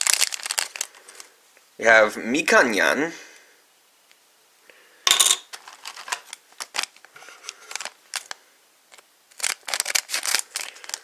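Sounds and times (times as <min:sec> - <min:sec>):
foil packs rustling: 0:00.0 - 0:01.3, 0:05.5 - 0:11.0
light plastic clicks and crinkles: 0:00.0 - 0:01.3, 0:05.5 - 0:11.0.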